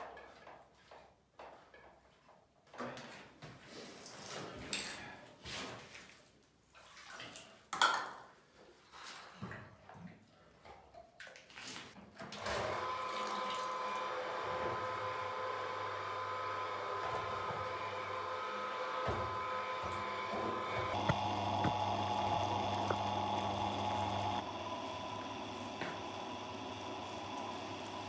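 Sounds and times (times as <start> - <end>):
electric pump motor humming: 12.4 - 28.0.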